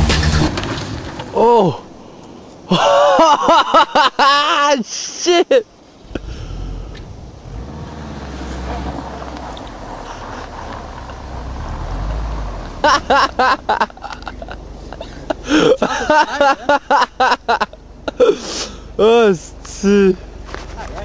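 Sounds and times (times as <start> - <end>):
car engine rumbling: 0.0 - 2.7, 5.6 - 21.0
people's voices: 18.2 - 21.0.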